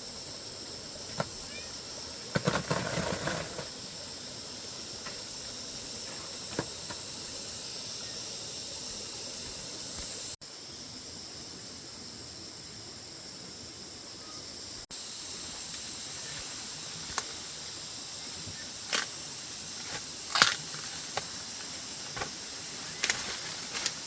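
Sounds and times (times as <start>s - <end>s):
insects droning: 0.0s - 24.0s
rustling and crackling: 2.3s - 3.8s.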